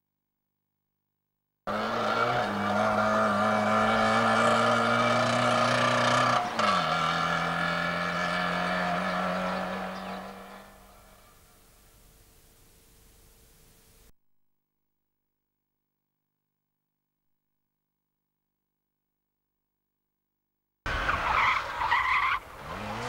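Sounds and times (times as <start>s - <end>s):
two-stroke car engine revving: 1.7s - 10.8s, 22.6s - 23.0s.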